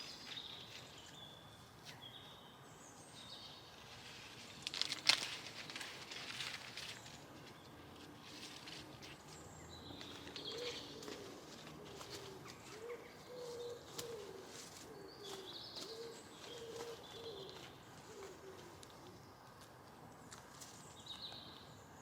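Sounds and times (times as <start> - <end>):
bird cooing: 10.2 - 19.3.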